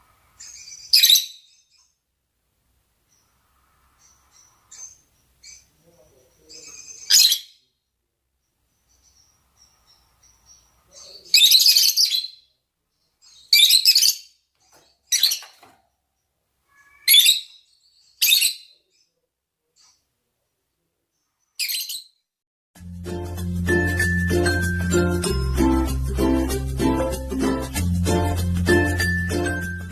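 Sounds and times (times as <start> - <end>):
faint bird chirps: 0.3 - 2.0, 3.0 - 22.3
lovebirds shrieking: 16.7 - 18.6.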